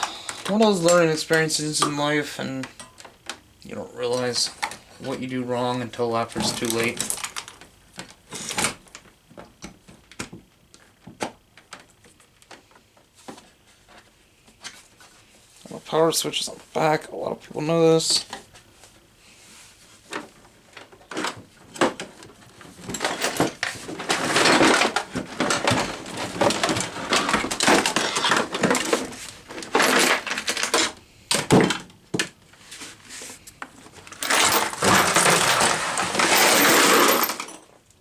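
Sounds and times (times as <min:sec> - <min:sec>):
clattering knocking and scraping: 0:21.0 - 0:32.3, 0:33.9 - 0:37.6
rubbing and rattling: 0:33.9 - 0:37.6.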